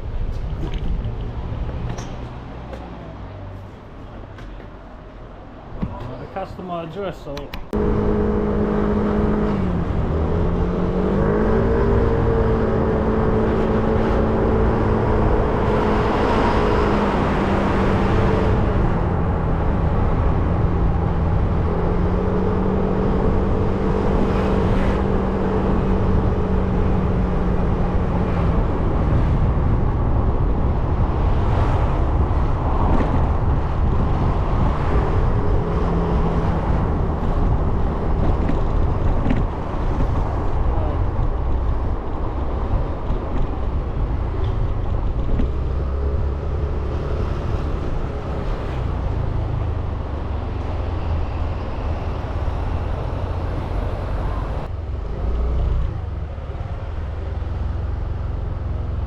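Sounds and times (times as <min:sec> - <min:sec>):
wind rush: 0:09.1 - 0:54.7.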